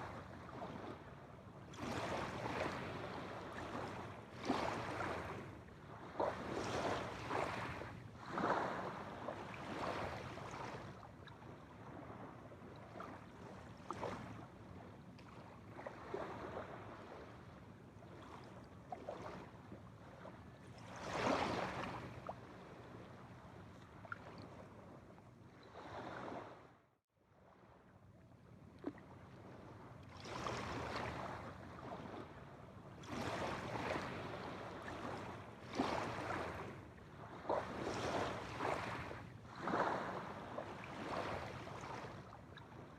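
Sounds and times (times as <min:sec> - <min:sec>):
waves washing onto shore: 0:18.1 - 0:23.0, 0:30.1 - 0:42.9.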